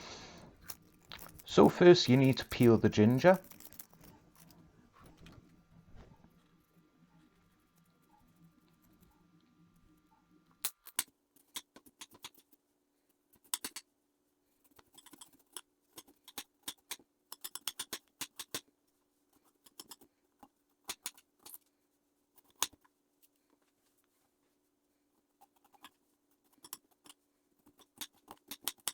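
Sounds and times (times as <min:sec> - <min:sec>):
scraping strokes on ginger skin: 0:00.0 - 0:05.2.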